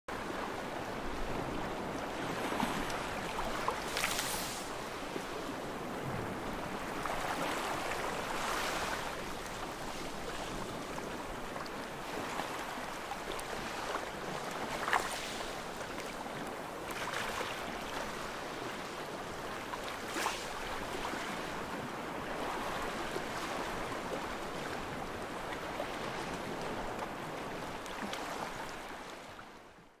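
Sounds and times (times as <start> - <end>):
waves washing: 0.1 - 29.4.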